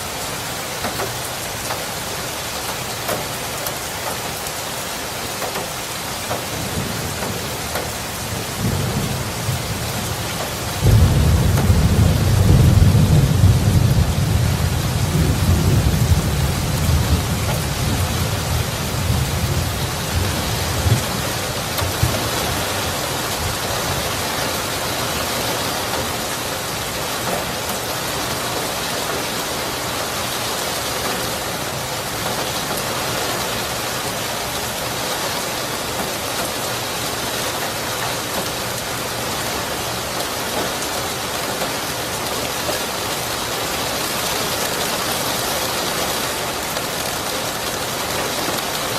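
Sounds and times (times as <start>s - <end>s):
heavy rain: 0.0s - 48.9s
thunder rumbling: 6.5s - 24.5s.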